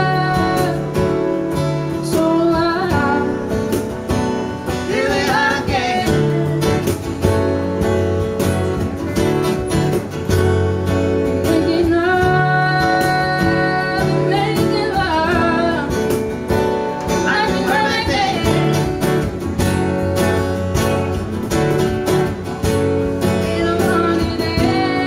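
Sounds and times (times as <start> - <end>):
person singing: 0.0 - 1.1, 11.5 - 16.1, 17.2 - 19.0, 23.3 - 25.0
cajon beat: 0.0 - 25.0
strummed acoustic guitar: 0.0 - 25.0.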